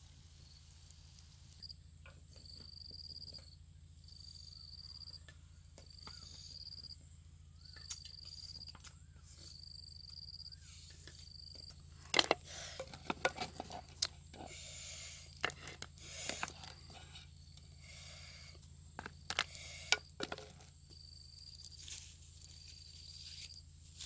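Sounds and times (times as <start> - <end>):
faint chirp: 0.4 - 11.9
insect trilling: 9.4 - 23.6
sharp knocks and handling noise: 11.6 - 14.6, 15.4 - 17.7, 18.6 - 21.0.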